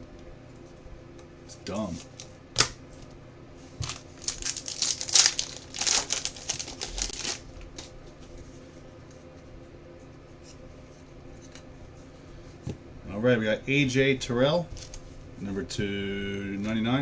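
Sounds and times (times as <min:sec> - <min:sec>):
plastic packaging crinkling: 0:03.8 - 0:07.9.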